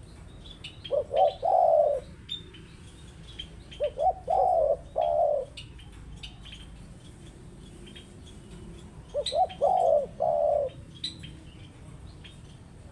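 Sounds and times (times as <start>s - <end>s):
small birds chirping: 0.0s - 12.9s
dove cooing: 0.9s - 2.2s, 3.8s - 5.7s, 9.1s - 11.2s.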